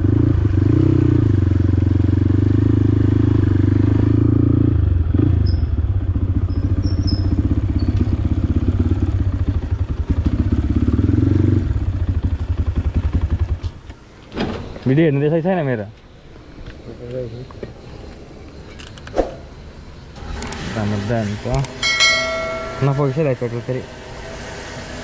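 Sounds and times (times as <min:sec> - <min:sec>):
motorcycle engine running: 0:00.0 - 0:13.9.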